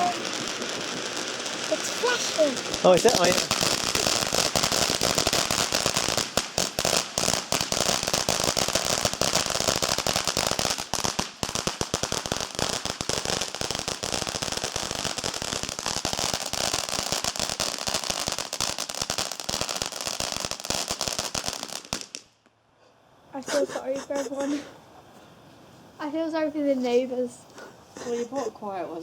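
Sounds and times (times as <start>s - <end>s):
firework crackling: 0.0s - 22.5s.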